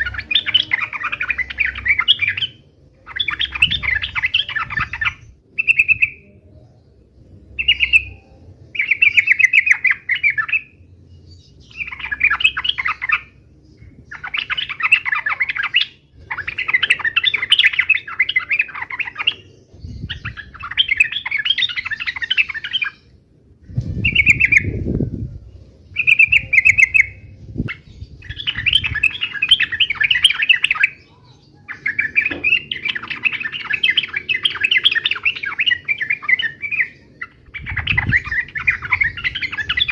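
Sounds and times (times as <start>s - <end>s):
bird chattering song: 0.0s - 39.9s
low rumble: 23.1s - 29.1s.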